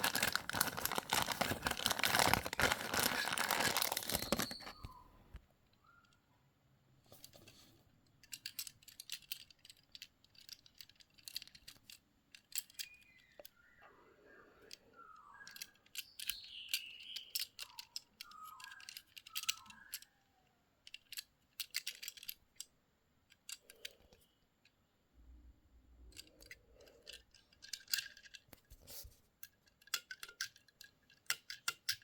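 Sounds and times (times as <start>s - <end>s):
squeaky rubbing: 0.0s - 5.2s
packaging clicks and crinkles: 0.0s - 5.4s.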